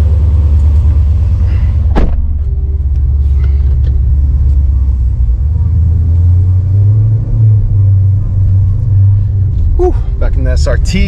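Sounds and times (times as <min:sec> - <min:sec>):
engine low drone from cabin: 0:00.0 - 0:11.0
sharp thump: 0:01.9 - 0:02.7.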